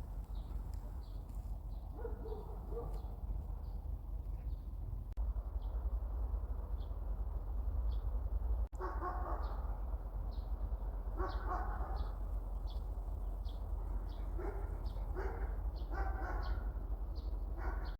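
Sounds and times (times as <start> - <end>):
steady low rumble: 0.0 - 17.6
dog barking: 1.9 - 3.2, 8.8 - 9.7, 11.2 - 12.2, 14.1 - 16.8, 17.6 - 17.9.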